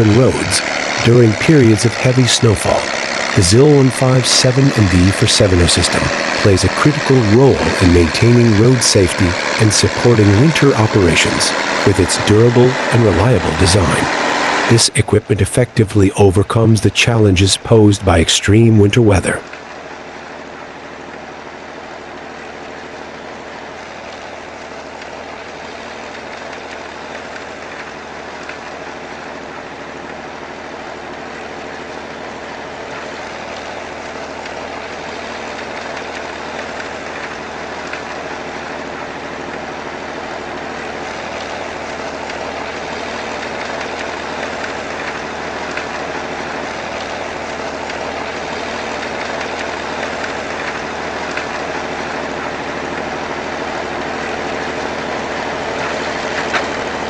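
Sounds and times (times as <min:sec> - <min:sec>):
rushing noise: 0:00.0 - 0:19.4
heavy vehicle engine running: 0:00.0 - 0:57.0.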